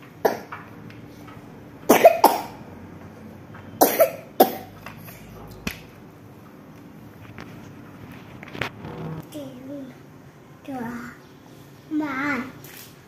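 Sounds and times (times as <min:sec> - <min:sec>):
child coughing: 0:00.2 - 0:00.6, 0:01.9 - 0:02.6, 0:03.8 - 0:04.8.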